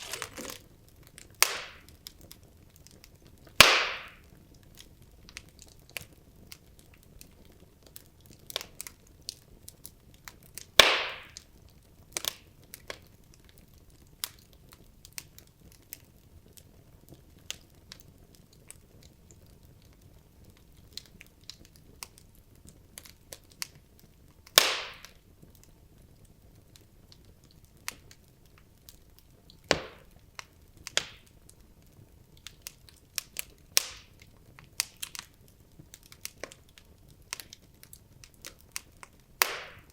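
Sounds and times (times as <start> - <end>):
loud fire pops: 0.0 - 2.3, 3.0 - 4.7, 10.5 - 11.5, 24.4 - 25.2, 29.6 - 31.4, 32.4 - 39.9
logs crackling in fireplace: 0.0 - 39.9.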